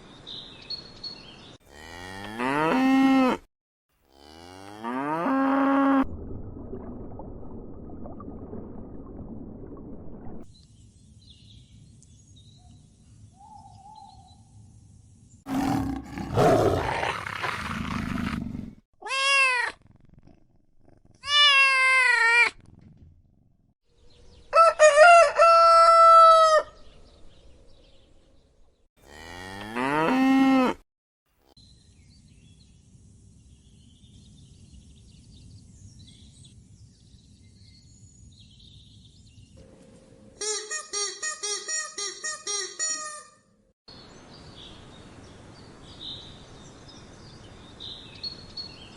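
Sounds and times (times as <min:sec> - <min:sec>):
animal roar: 0:15.5 - 0:18.8.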